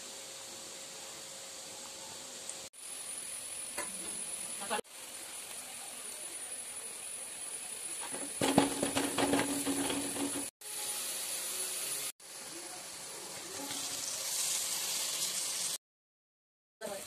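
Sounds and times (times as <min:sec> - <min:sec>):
onions sizzling in metal pan: 0:00.0 - 0:15.8.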